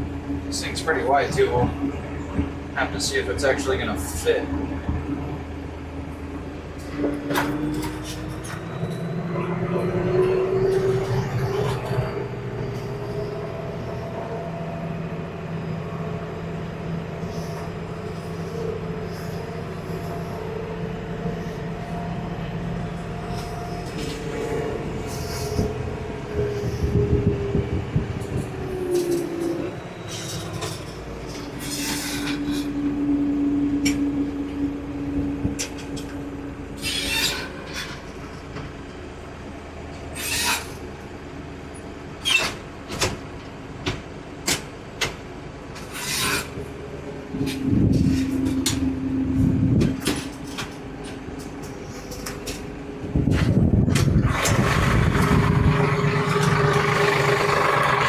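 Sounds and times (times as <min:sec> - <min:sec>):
tractor diesel engine running: 0:00.0 - 0:36.8, 0:46.6 - 0:58.0.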